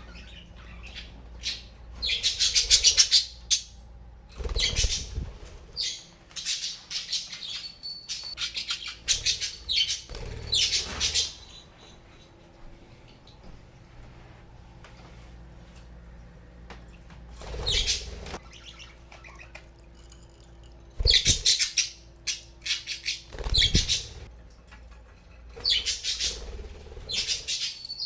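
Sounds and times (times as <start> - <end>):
budgerigars chirping and squawking: 0.0 - 3.8, 4.4 - 11.5, 17.4 - 19.6, 21.0 - 24.3, 25.6 - 28.0.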